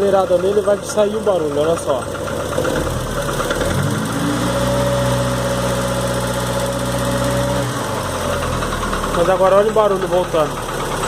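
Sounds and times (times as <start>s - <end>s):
dry engine knock: 0.0s - 3.9s, 8.3s - 11.0s
car engine revving: 0.0s - 11.0s.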